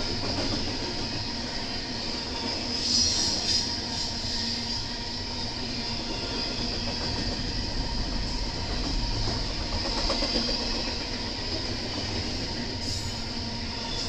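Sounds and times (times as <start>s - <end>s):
train wheels rumbling on rail: 0.0s - 14.0s
high-pitched hiss: 1.2s - 6.3s.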